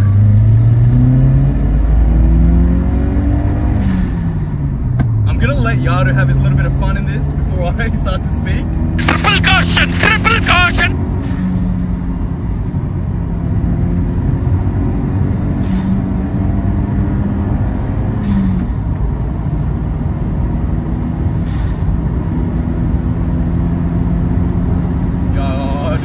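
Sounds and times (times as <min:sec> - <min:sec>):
road noise: 0:00.0 - 0:26.0
car engine drone: 0:06.3 - 0:26.0.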